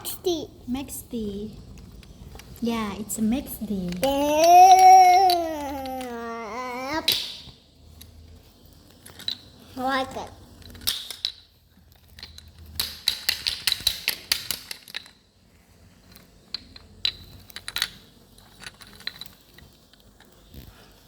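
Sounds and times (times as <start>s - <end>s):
toy cars knocking together: 3.8s - 7.6s, 10.1s - 11.4s, 12.1s - 15.2s.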